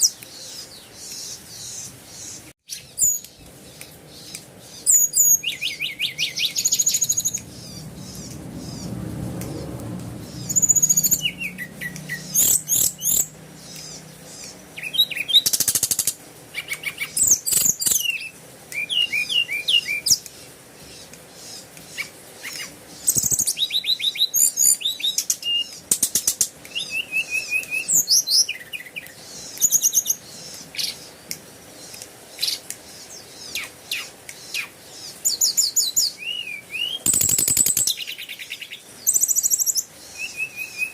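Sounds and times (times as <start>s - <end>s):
birds chirping and trilling: 0.0s - 40.9s
low hum: 6.8s - 14.8s.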